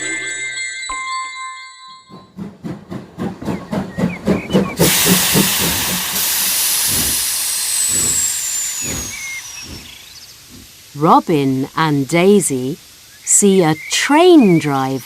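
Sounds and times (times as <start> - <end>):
steam train chuffing: 2.1 - 15.0
loud hiss of steam: 4.8 - 15.0.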